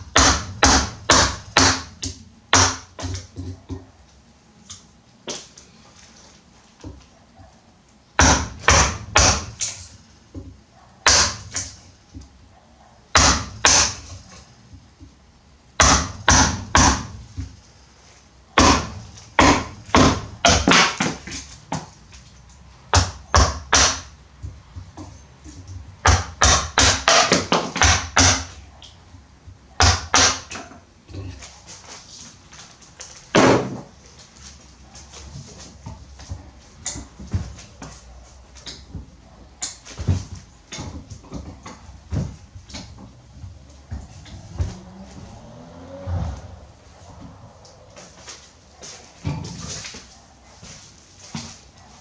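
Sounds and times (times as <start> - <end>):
tool knocking on wood: 0.1 - 3.9, 18.6 - 21.9.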